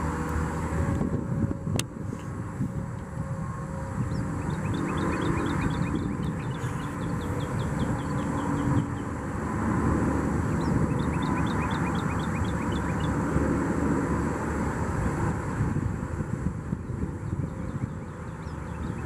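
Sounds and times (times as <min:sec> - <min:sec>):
steady low rumble: 0:00.0 - 0:19.0
bird trilling chirps: 0:04.1 - 0:09.1, 0:10.5 - 0:13.2.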